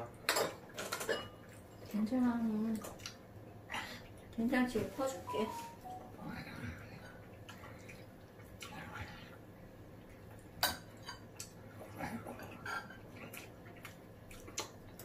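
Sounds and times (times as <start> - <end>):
utensils clinking on ceramic bowls: 0.3 - 1.4.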